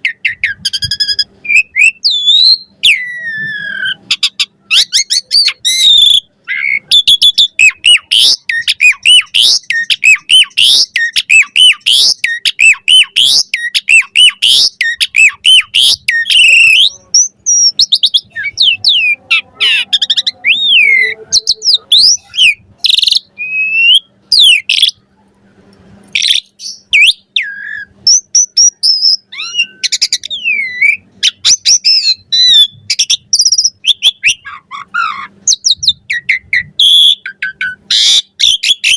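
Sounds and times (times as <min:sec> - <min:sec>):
starling singing whistled song: 0:00.0 - 0:25.0, 0:26.2 - 0:38.9.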